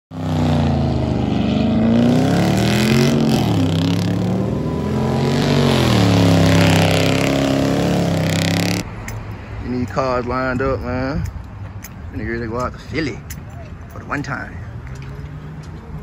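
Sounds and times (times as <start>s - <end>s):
car engine revving high: 0.1s - 8.8s.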